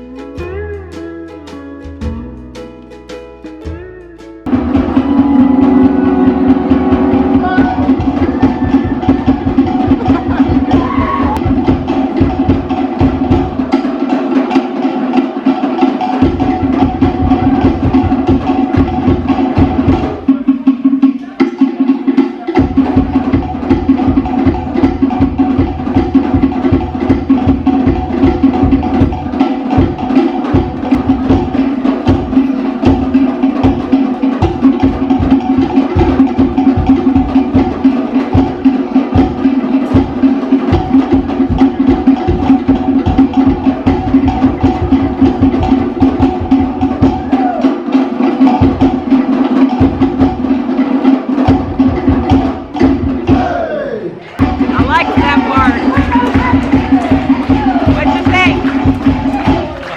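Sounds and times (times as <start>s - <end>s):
held musical tones: 0.0s - 11.4s
fast log-drum drumming: 2.0s - 53.5s, 54.4s - 59.9s.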